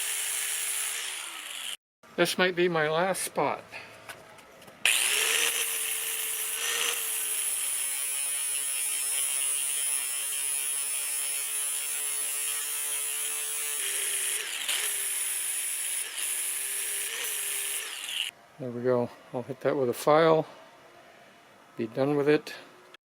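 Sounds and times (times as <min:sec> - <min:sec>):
grinder sanding metal: 0:00.0 - 0:01.8, 0:04.9 - 0:18.3.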